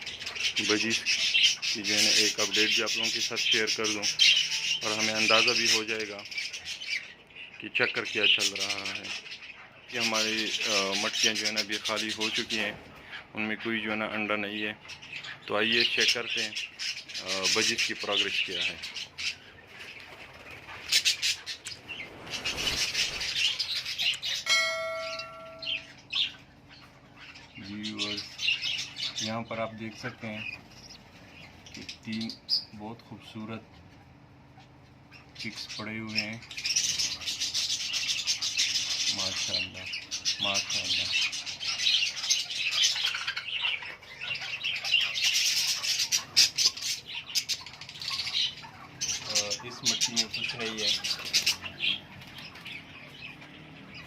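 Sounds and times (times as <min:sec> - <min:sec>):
birds chirping and chattering: 0:00.0 - 0:54.0
sharp loud squawks: 0:20.6 - 0:27.6
steady ringing tone: 0:24.4 - 0:26.1.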